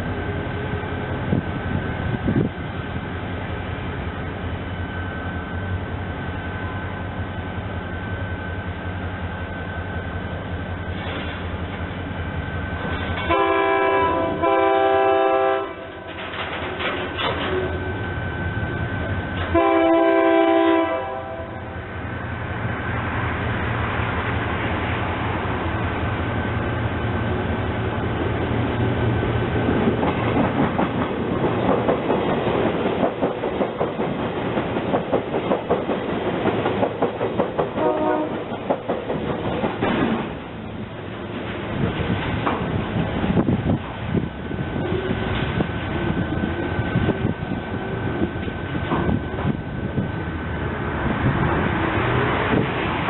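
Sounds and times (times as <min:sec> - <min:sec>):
train horn blasts: 0:13.2 - 0:16.1, 0:19.4 - 0:21.8, 0:37.8 - 0:38.5
train wheels clattering: 0:16.0 - 0:17.9, 0:29.5 - 0:40.5.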